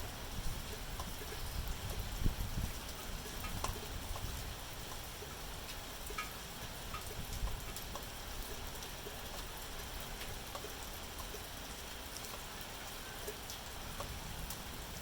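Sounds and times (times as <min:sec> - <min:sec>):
steady rain hiss: 0:00.0 - 0:15.0
single raindrops ticking: 0:02.9 - 0:14.7.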